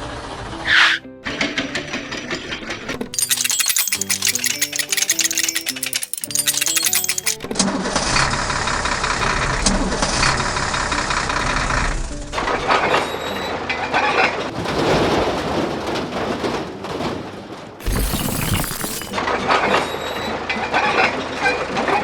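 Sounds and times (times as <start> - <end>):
clattering and crashing: 2.5 - 7.6, 14.5 - 19.2.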